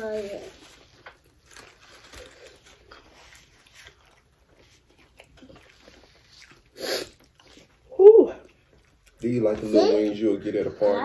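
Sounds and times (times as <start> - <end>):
crunch or rustle: 0.0 - 6.7
people biting and chewing: 0.8 - 10.2.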